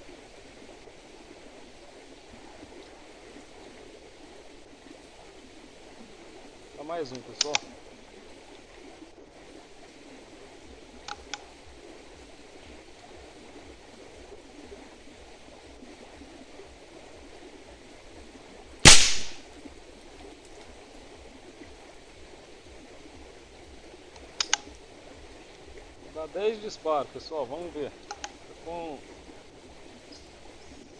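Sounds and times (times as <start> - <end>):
faint clicks: 7.0 - 7.8, 11.0 - 11.5, 24.1 - 24.8, 28.0 - 28.5
air rifle shot: 18.9 - 19.4.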